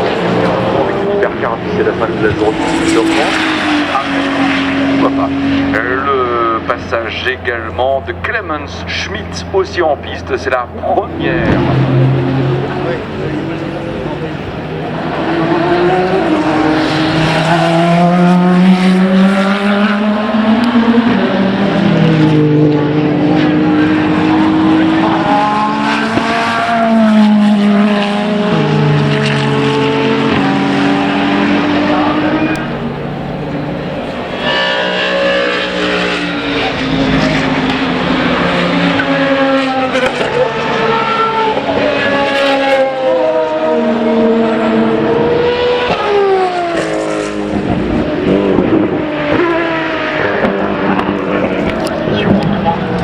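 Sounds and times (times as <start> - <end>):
race car accelerating past: 0.0 - 9.5, 10.3 - 53.0.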